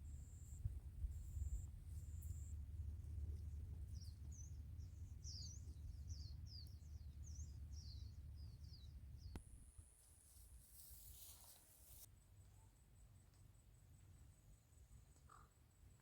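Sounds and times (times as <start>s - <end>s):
bird chirping: 3.2s - 9.4s.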